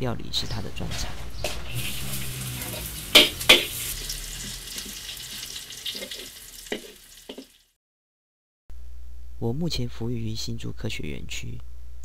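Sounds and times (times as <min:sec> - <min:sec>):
food sizzling in a pan: 0:01.7 - 0:07.8.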